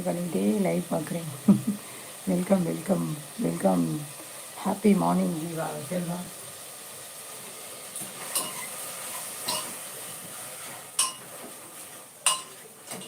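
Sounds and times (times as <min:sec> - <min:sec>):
faint steady hiss: 0:00.0 - 0:13.0
metal utensils clinking on pans: 0:08.0 - 0:09.8, 0:10.6 - 0:13.0.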